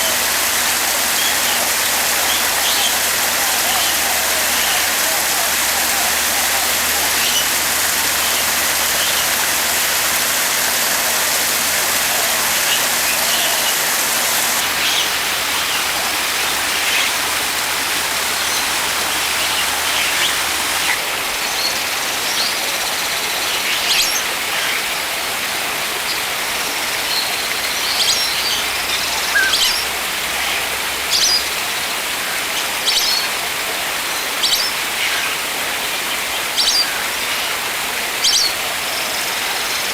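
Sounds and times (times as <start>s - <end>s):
birds chirping: 0.0s - 22.6s
rushing water: 0.0s - 39.9s.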